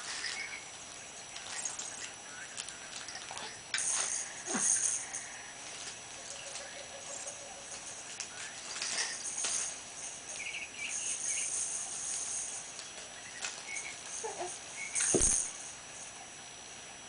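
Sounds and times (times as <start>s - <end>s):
steady high hiss: 0.0s - 16.8s
sharp thump: 15.1s - 15.4s.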